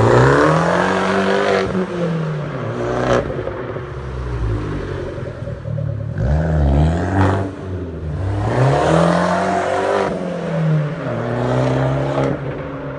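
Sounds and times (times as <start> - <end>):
car engine revving: 0.0 - 12.9.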